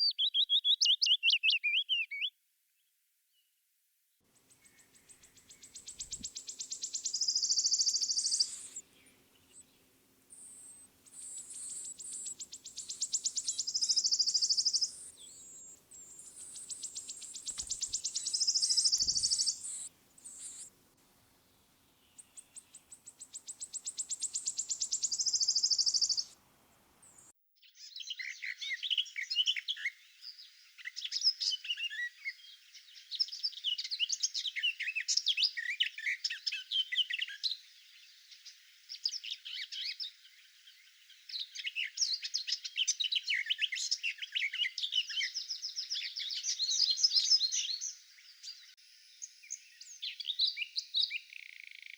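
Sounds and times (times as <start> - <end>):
bird chirping and tweeting: 0.0 - 2.3, 4.4 - 20.7, 22.0 - 26.4, 27.1 - 51.9
songbird trilling: 0.0 - 2.3, 4.6 - 20.7, 22.0 - 26.4.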